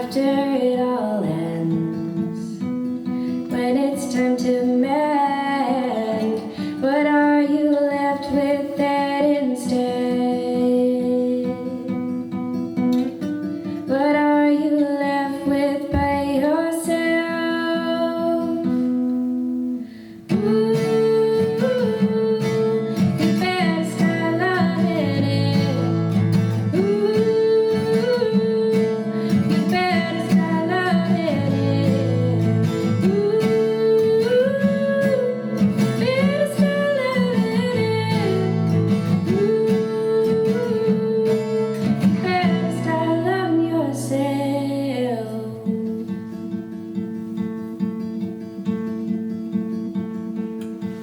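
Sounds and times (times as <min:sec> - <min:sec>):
acoustic guitar chords: 0:00.0 - 0:51.0.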